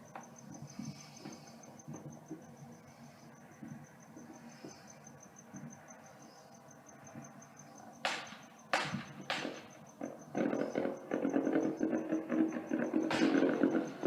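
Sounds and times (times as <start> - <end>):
crickets chirping: 0.0 - 14.0
firework bangs: 8.0 - 14.0.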